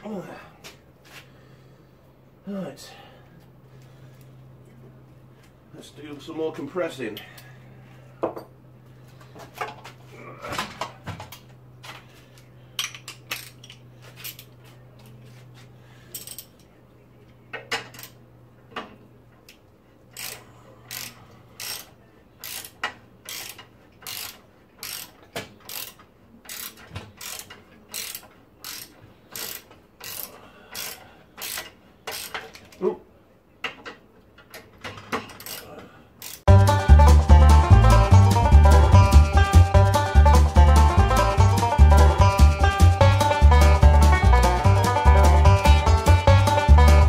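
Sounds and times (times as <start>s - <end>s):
ratchet wrench clicking: 12.8s - 14.5s, 16.1s - 16.5s, 20.1s - 32.6s, 35.3s - 36.5s.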